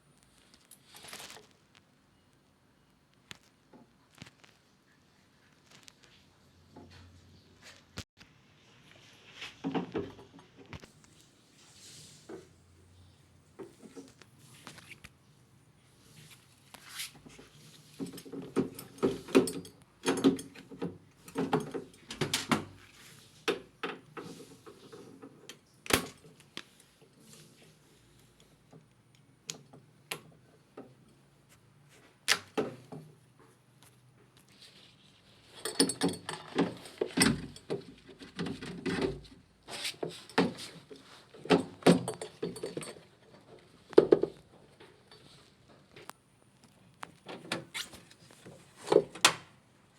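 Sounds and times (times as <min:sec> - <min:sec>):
objects knocking and rattling: 0:17.2 - 0:22.9, 0:35.5 - 0:45.0.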